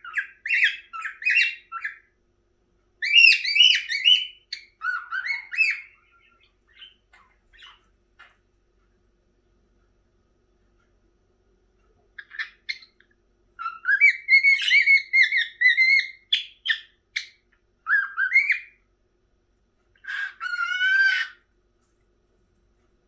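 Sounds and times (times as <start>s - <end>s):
cockatiel chirps: 0.0s - 2.1s, 3.0s - 8.4s, 12.2s - 18.8s, 20.0s - 21.4s
cockatiel whistling: 0.0s - 2.1s, 3.0s - 7.0s, 13.6s - 18.8s, 20.0s - 21.4s.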